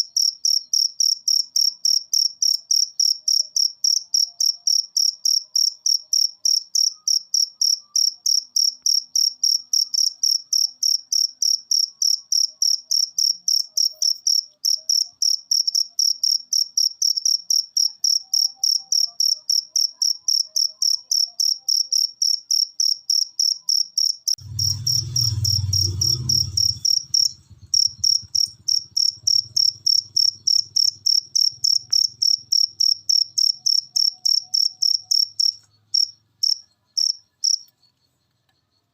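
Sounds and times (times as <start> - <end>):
cricket chirping: 0.0 - 38.9
low rumble: 24.4 - 31.1.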